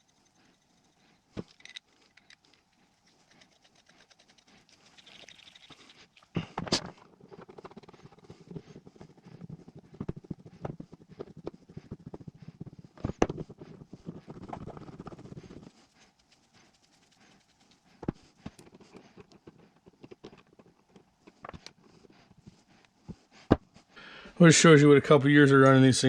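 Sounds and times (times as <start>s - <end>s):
metal parts rattling: 1.4s - 2.7s.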